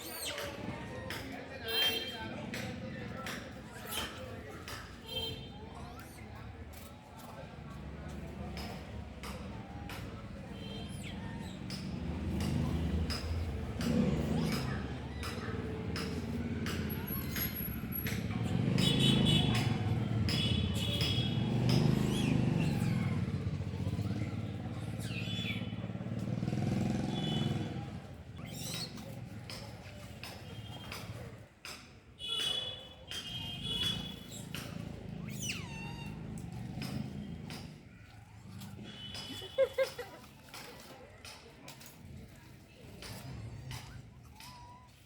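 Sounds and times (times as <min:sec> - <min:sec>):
passing vehicle engines: 0:00.0 - 0:31.8, 0:33.0 - 0:45.0
people's voices: 0:00.0 - 0:45.0.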